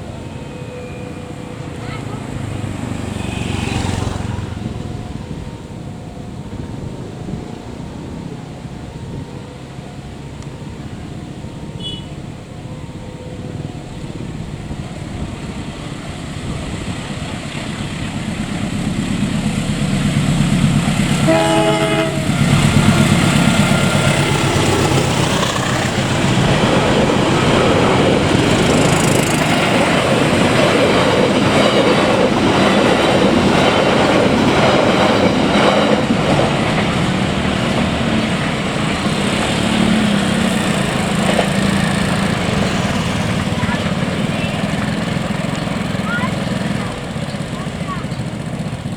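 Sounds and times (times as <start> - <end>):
passing train rush: 0.0 - 48.9
wheels clattering on rails: 9.8 - 48.9
train horn: 11.7 - 12.3, 21.1 - 24.0.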